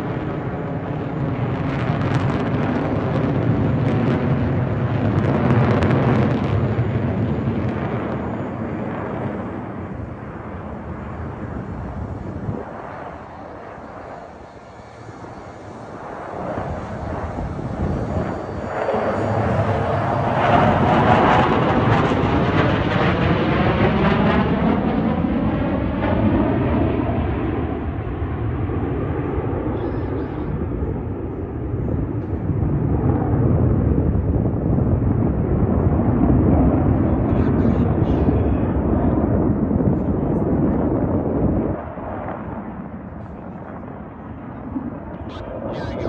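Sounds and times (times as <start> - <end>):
fighter jets flying: 0.0 - 46.0.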